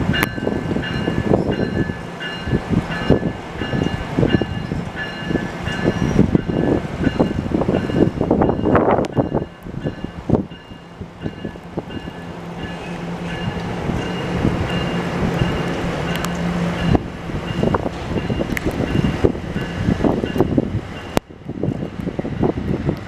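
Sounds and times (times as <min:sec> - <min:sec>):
electric train passing: 0:00.0 - 0:23.0
wind buffeting microphone: 0:00.0 - 0:23.0
rain falling: 0:13.1 - 0:16.5.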